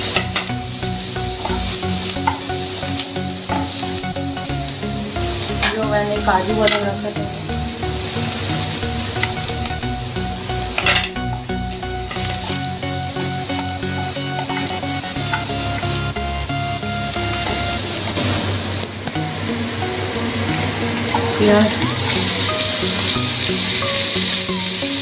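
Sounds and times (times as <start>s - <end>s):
wooden spatula stirring in pan: 0.0s - 16.2s
food sizzling in butter: 0.0s - 25.0s.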